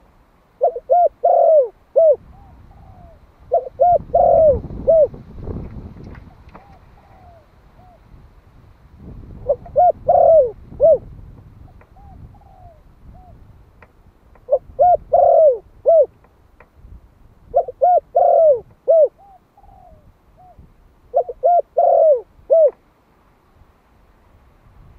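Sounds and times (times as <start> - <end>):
dove cooing: 0.6 - 5.2, 6.2 - 8.1, 9.3 - 13.4, 14.4 - 16.2, 17.5 - 22.8
faint dove coos: 0.6 - 5.2, 6.2 - 8.2, 9.3 - 13.5, 14.4 - 16.2, 17.5 - 22.8.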